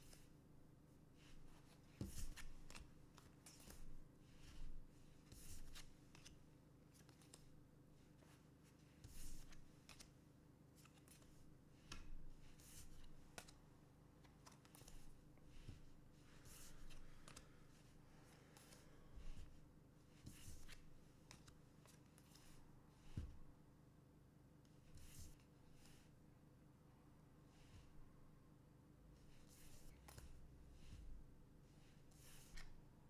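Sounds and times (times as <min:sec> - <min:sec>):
trading cards scuffing and sliding: 0:01.2 - 0:06.4, 0:09.0 - 0:10.1, 0:14.3 - 0:17.6, 0:18.2 - 0:23.4, 0:31.9 - 0:32.8.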